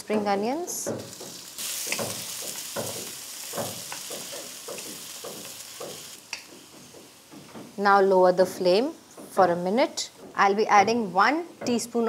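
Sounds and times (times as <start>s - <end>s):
vegetables sizzling in hot oil: 0.6s - 7.4s
wooden spatula knocking against pan: 0.8s - 7.8s.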